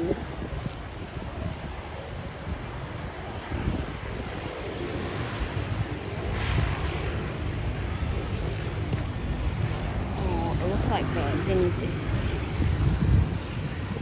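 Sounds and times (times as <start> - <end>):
airliner engine rumble: 0.0 - 14.0
wind buffeting microphone: 0.0 - 14.0.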